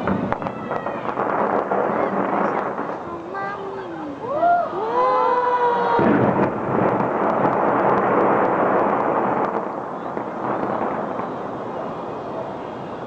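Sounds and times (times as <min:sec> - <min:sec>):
fireworks bursting: 0:00.0 - 0:13.0
fireworks crackling: 0:00.0 - 0:13.0.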